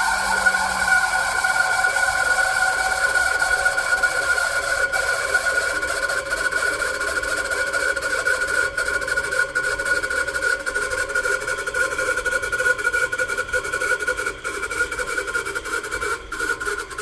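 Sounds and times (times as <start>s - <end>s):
rough rapid buzz: 0.0s - 5.4s
machine high-pitched whine: 0.0s - 17.0s.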